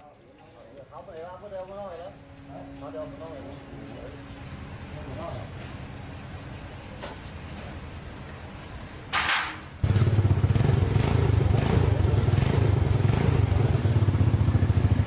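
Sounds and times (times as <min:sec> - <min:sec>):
motorcycle engine starting and running: 0:09.8 - 0:15.0.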